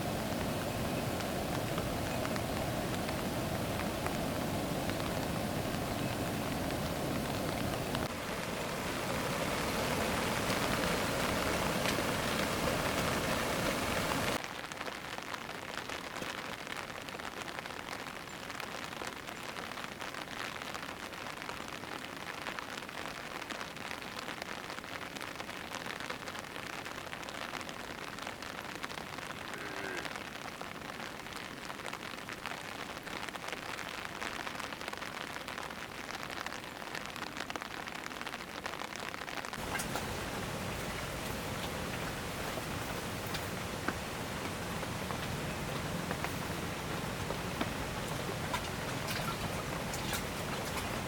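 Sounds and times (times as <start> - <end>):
rain falling: 0.0 - 51.0.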